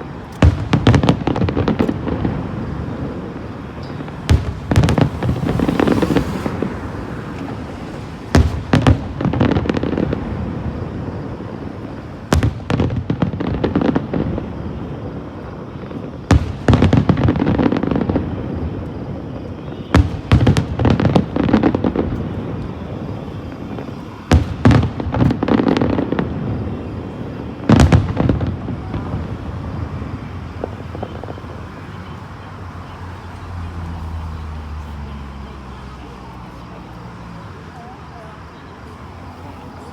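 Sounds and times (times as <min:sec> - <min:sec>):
fireworks bangs: 0:00.0 - 0:39.9
fireworks crackling: 0:00.0 - 0:39.9
rumbling echo: 0:00.5 - 0:11.7.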